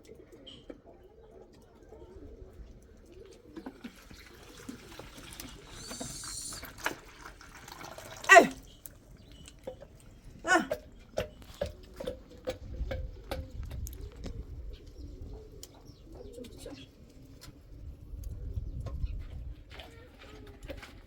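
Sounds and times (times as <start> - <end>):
doves cooing: 0.0 - 19.2
loud animal calls: 5.7 - 6.7, 8.3 - 8.6, 10.5 - 10.8.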